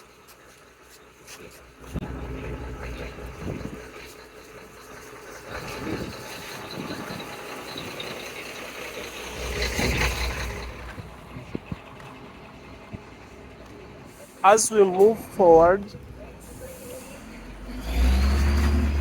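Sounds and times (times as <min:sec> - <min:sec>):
vehicle engines passing: 0:00.2 - 0:19.0.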